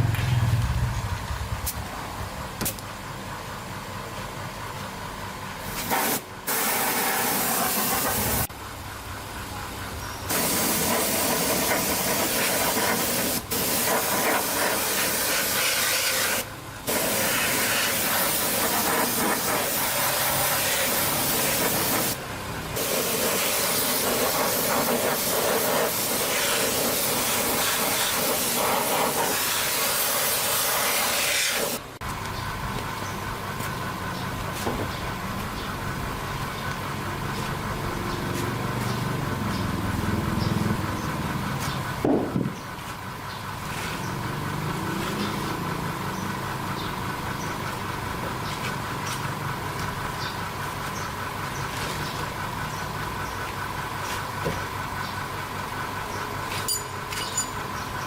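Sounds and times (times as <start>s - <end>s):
low motor hum: 0.0s - 3.6s, 32.0s - 56.3s
loud spray hiss: 5.6s - 8.5s, 10.3s - 22.2s, 22.8s - 31.9s.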